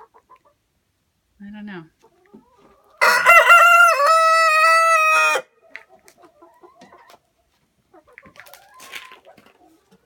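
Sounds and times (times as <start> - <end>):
rooster crowing: 3.0 - 5.5.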